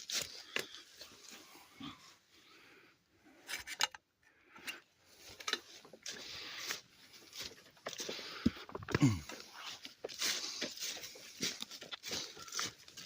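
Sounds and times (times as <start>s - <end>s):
footsteps crunching through dry leaves: 5.1s - 13.0s.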